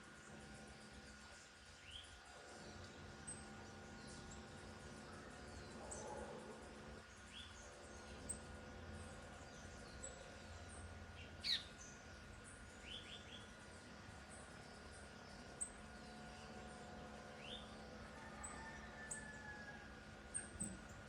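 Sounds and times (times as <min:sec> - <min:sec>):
faint steady hum: 0:00.0 - 0:21.0
bird chirping: 0:07.0 - 0:17.7.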